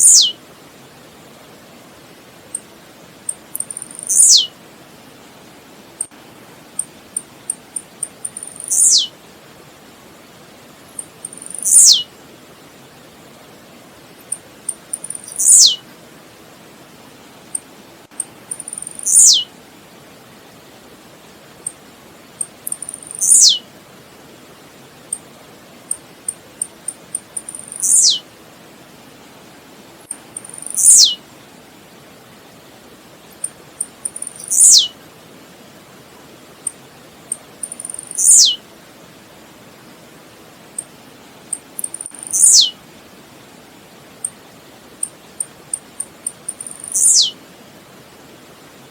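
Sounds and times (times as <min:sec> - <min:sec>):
bird singing buzzy notes: 0:00.0 - 0:00.4, 0:03.6 - 0:04.5, 0:08.2 - 0:09.1, 0:11.0 - 0:12.0, 0:15.0 - 0:15.8, 0:18.5 - 0:19.4, 0:22.6 - 0:23.6, 0:27.4 - 0:28.2, 0:30.4 - 0:31.2, 0:34.0 - 0:34.9, 0:37.6 - 0:38.6, 0:41.8 - 0:42.7, 0:45.8 - 0:47.4
steady hiss: 0:00.0 - 0:48.9.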